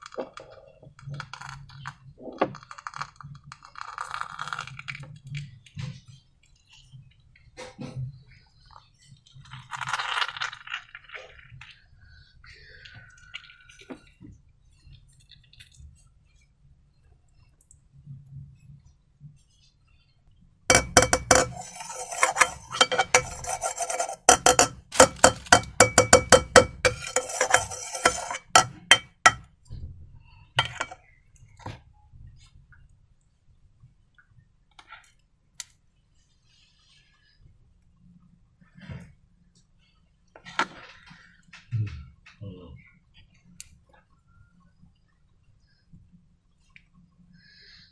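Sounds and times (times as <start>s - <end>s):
utensil scraping a hard bowl: 20.7s - 29.4s, 30.6s - 31.0s.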